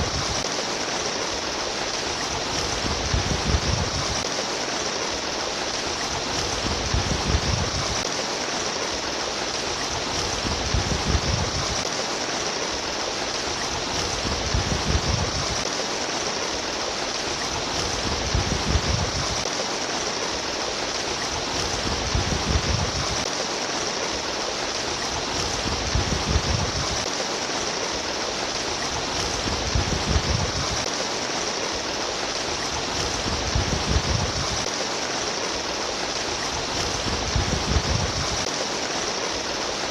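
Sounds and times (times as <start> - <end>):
water running and trickling: 0.0 - 39.9.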